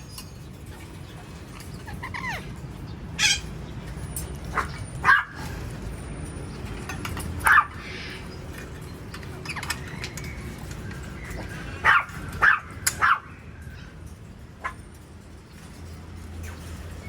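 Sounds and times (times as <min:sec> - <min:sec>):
parrot squawking: 0:01.7 - 0:02.6, 0:03.2 - 0:03.5.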